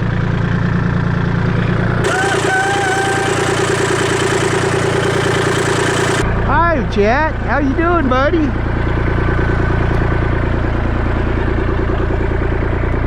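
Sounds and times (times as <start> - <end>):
engine idling: 0.0 - 13.0
engine running with rapid pulse: 1.4 - 6.5.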